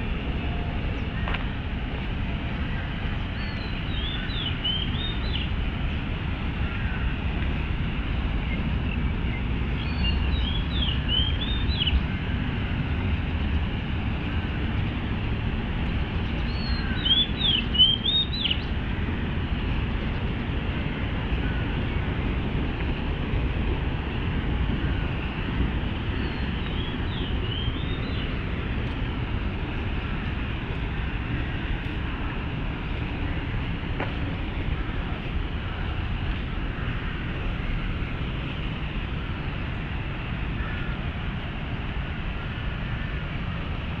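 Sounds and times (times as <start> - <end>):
low rumble of city traffic: 0.0 - 44.0
songbird whistling: 3.4 - 5.5, 9.3 - 12.0, 16.5 - 18.7, 26.2 - 28.3.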